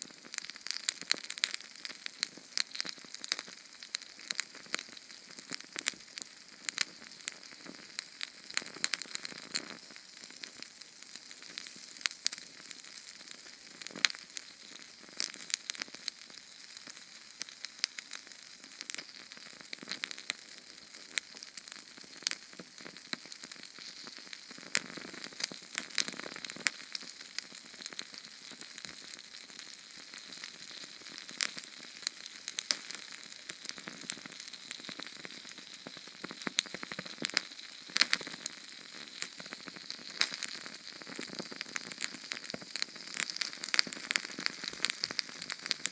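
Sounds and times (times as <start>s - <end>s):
canned fuel flame crackling: 30.3s - 45.9s.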